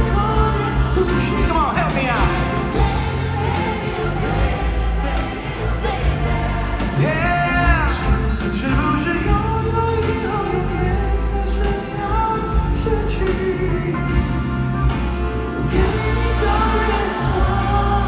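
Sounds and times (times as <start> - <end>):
live band playing pop ballad: 0.0 - 18.0.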